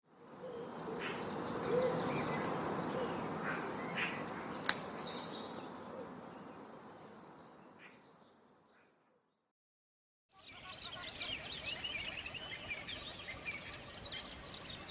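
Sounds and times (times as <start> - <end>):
birds chirping and calling: 10.4 - 14.9.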